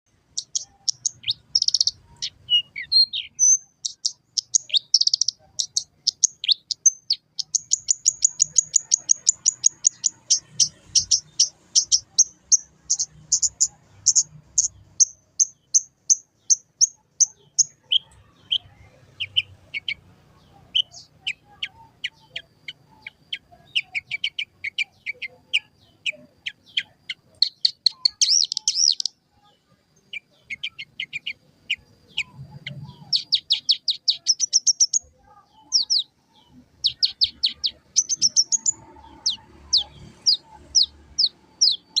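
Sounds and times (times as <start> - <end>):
lark singing: 0.1 - 42.0.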